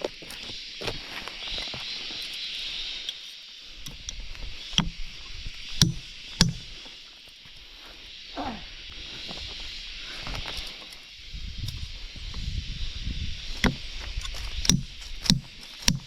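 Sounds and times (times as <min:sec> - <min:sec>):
steady high-pitched hiss: 0:00.0 - 0:16.0
sharp knocks: 0:05.8 - 0:06.7, 0:14.6 - 0:16.0.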